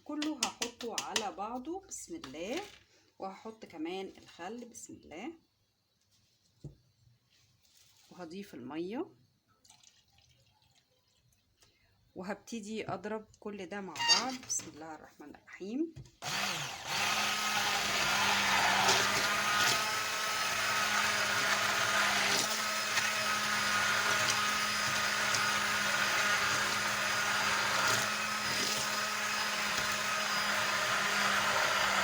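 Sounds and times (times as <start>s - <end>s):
hand blender motor hum: 16.2s - 32.0s.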